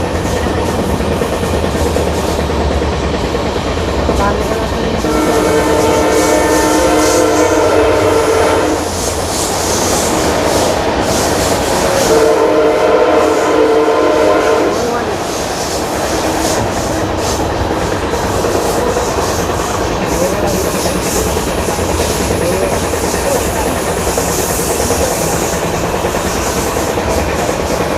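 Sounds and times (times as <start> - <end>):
moving train rumble and clatter: 0.0 - 27.9
locomotive air horn: 5.0 - 9.1, 11.7 - 15.1.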